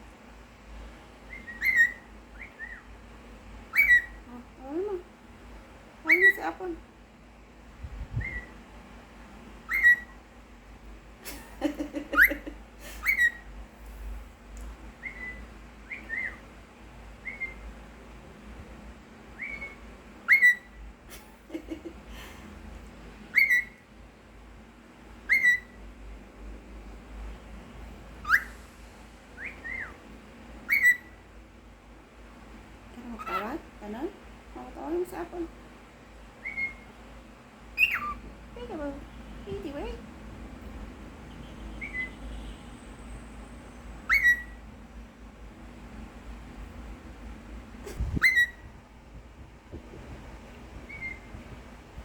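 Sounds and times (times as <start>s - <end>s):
cockatiel whistling chirps: 1.3s - 2.9s, 3.7s - 4.2s, 8.2s - 8.5s, 9.7s - 10.2s, 13.0s - 13.5s, 15.0s - 16.5s, 17.2s - 17.6s, 19.4s - 20.8s, 23.3s - 23.8s, 25.2s - 25.8s, 28.2s - 28.6s, 29.4s - 30.0s, 30.7s - 31.2s, 36.4s - 36.9s, 37.8s - 38.2s, 41.8s - 42.2s, 44.0s - 44.6s, 47.9s - 48.7s, 50.9s - 51.3s.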